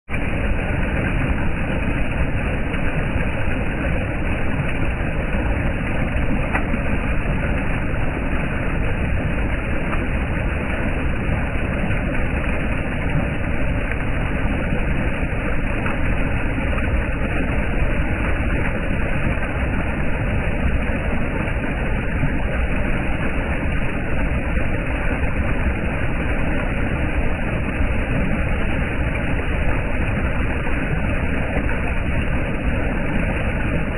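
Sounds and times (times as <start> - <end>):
water rushing over a dam: 0.1 - 33.9.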